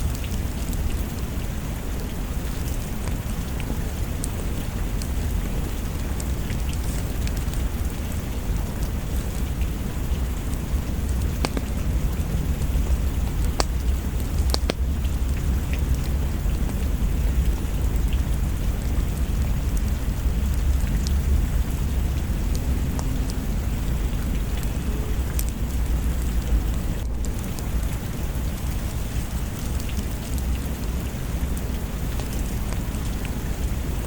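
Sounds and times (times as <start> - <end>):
deep low rumble: 0.0 - 34.0
steady rain: 0.0 - 34.0
sharp pops: 10.5 - 15.0.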